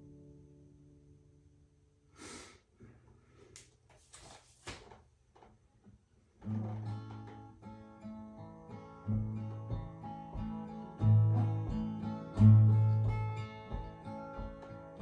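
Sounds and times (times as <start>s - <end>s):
guitar handling noises: 2.8s - 7.9s
acoustic guitar strumming chords: 6.4s - 15.0s.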